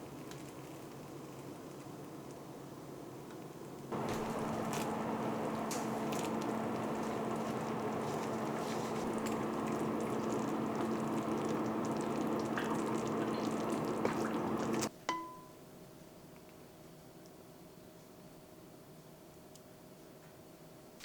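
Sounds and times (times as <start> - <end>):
water running from a tap: 4.0 - 14.9.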